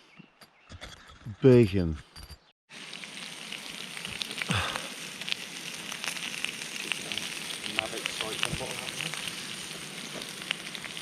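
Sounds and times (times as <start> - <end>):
bacon sizzling and popping: 2.7 - 11.0.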